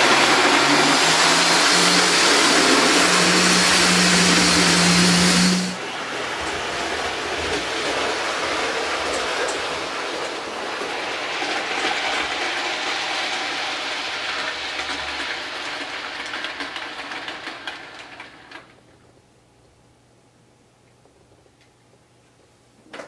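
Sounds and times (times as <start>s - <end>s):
model train motor and wheels: 0.0s - 18.8s
wheels clicking over rail joints: 6.4s - 18.8s.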